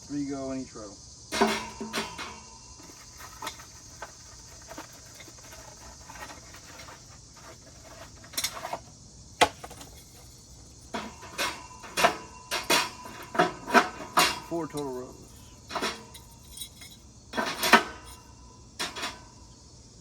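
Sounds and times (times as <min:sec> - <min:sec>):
ringing clinks: 0:01.3 - 0:03.7, 0:09.6 - 0:19.5
tiles clicking on metal rack: 0:01.3 - 0:08.8, 0:09.4 - 0:19.4.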